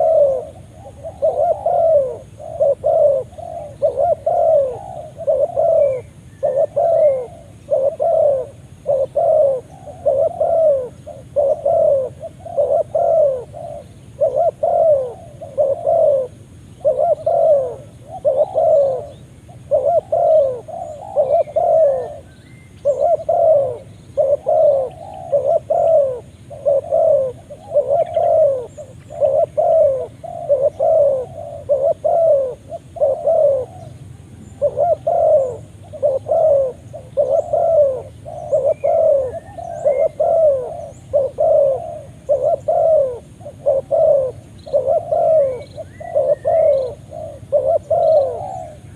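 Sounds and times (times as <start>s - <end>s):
dove cooing: 0.0s - 48.9s.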